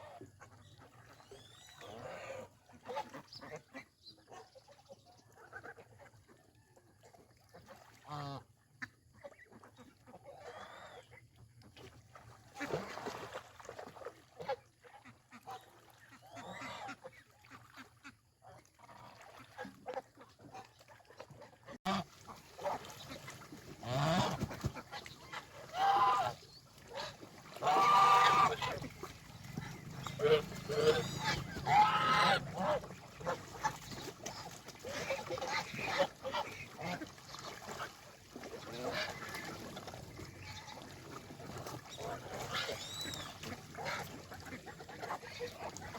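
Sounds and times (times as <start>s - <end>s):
geese honking: 25.3s - 34.6s.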